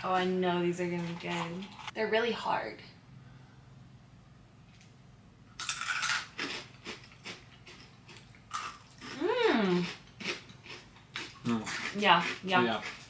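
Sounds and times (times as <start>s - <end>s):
crunching snacks: 5.6s - 9.2s
person humming mmm: 9.2s - 9.8s.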